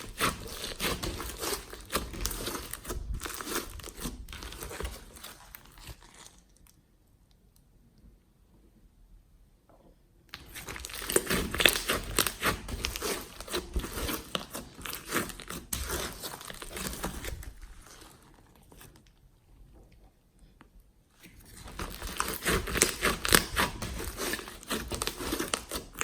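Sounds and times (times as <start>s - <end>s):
slime crackling and popping: 0.0s - 6.8s, 10.3s - 19.1s, 21.2s - 26.0s.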